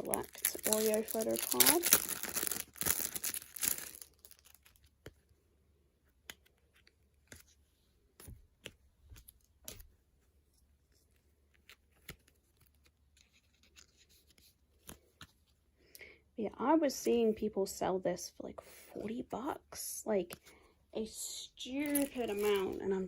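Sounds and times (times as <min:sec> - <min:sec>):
plastic packaging rustling: 0:00.0 - 0:05.0, 0:21.8 - 0:23.0.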